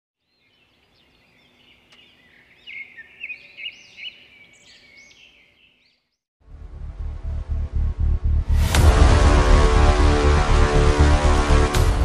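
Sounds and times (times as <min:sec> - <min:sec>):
birds chirping and calling: 0:00.2 - 0:06.2.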